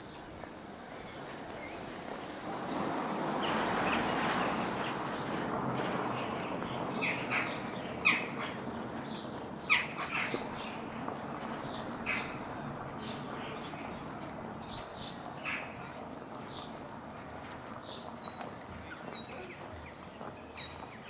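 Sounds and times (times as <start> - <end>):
birds squawking: 6.2 - 14.2, 15.3 - 15.9.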